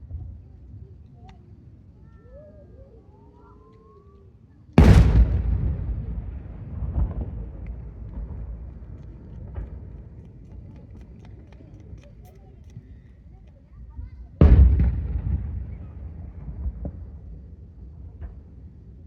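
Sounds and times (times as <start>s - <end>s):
small firework pops and crackles: 0.0s - 2.2s, 3.6s - 19.0s
firework shell booming: 4.8s - 10.2s, 14.4s - 17.4s
rumbling echo: 4.8s - 10.5s, 14.4s - 17.3s.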